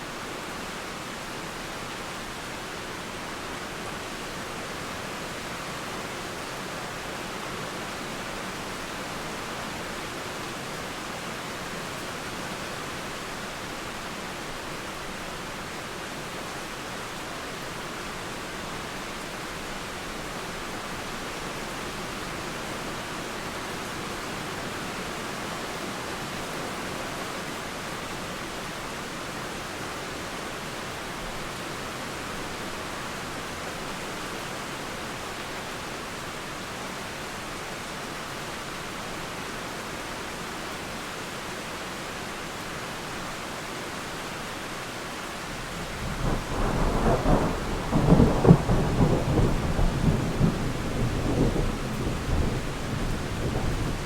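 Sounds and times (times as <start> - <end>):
steady rain falling: 0.0 - 54.0
low rumble of thunder: 45.6 - 54.0.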